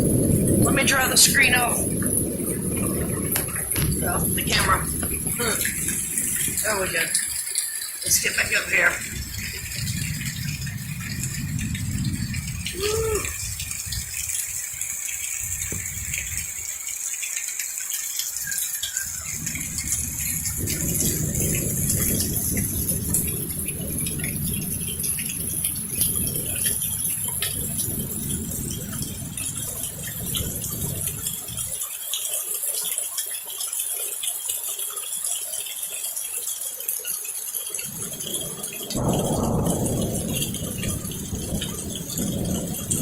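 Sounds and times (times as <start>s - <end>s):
deep low rumble: 0.0s - 6.7s, 9.0s - 14.0s, 19.3s - 31.7s
heavy rain pattering: 0.0s - 43.0s.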